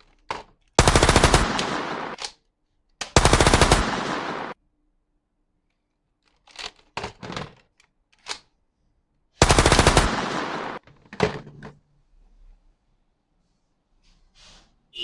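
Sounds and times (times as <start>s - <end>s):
toy gun clicks and knocks: 0.0s - 3.2s, 6.2s - 8.5s
toy machine-gun fire: 0.8s - 2.3s, 3.0s - 4.6s, 9.4s - 10.8s.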